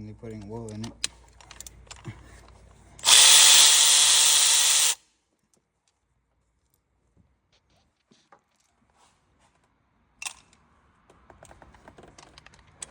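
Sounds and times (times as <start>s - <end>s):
power tool motor running: 3.0s - 5.0s.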